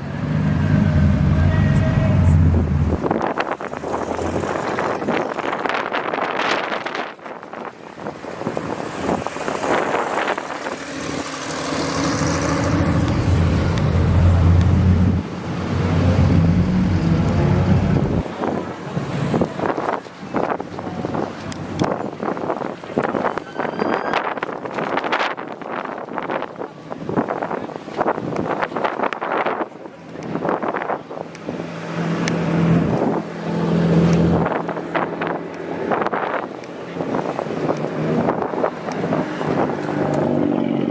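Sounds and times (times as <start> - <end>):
car engine passing: 0.1 - 23.4
wind buffeting microphone: 2.4 - 40.9
car engine driving past: 8.8 - 18.2.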